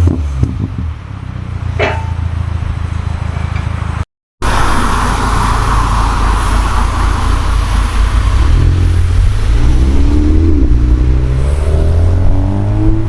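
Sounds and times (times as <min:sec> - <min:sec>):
car engine revving: 0:04.4 - 0:13.0.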